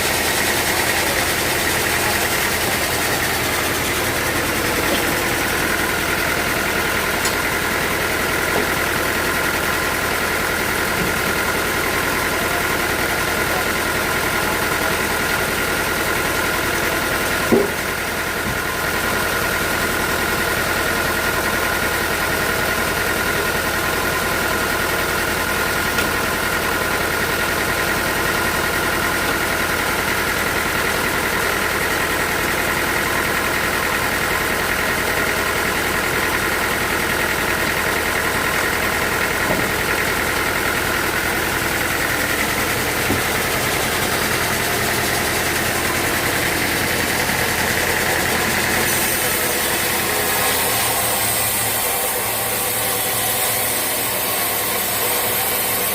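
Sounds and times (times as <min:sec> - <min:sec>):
sawmill machinery hum: 0:00.0 - 0:55.9.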